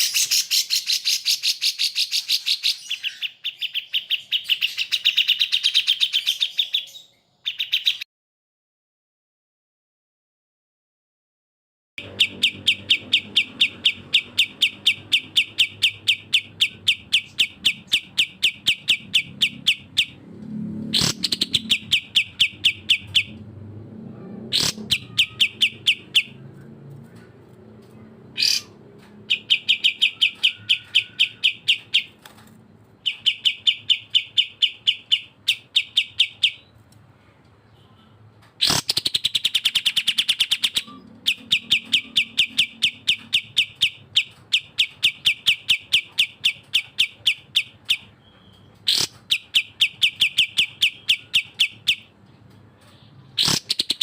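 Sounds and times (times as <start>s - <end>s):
songbird sharp repeated notes: 12.0s - 20.2s.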